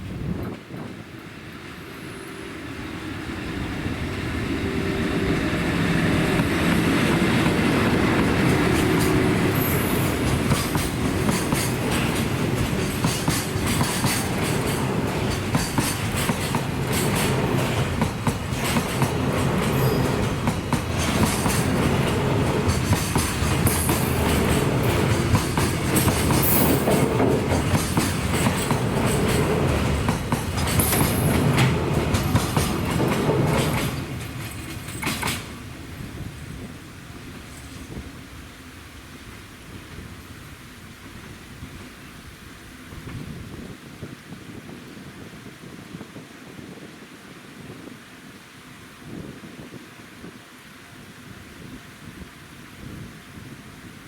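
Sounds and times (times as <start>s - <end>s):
train wheels clattering: 5.2s - 35.7s
wheel squeals: 8.7s - 11.0s.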